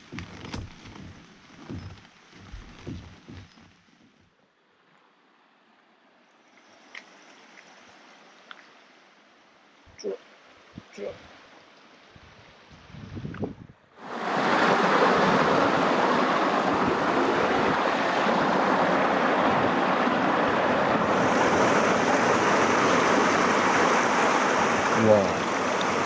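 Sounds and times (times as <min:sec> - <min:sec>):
water rushing over rocks: 0:14.0 - 0:26.0.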